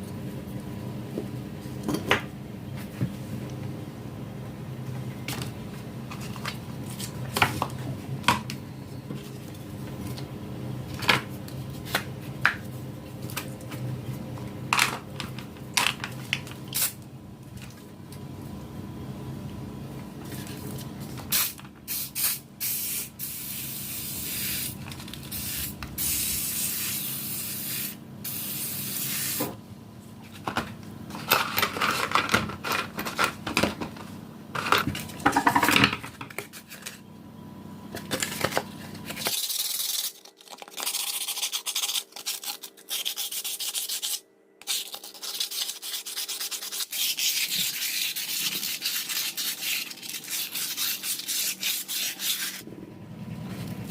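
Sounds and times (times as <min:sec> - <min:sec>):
low hum: 0:52.6 - 0:53.9.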